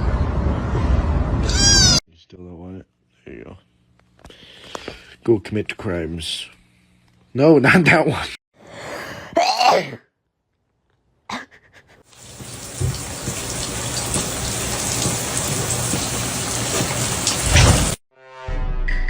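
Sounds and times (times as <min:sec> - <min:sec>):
falling water rushing: 0:12.1 - 0:18.0.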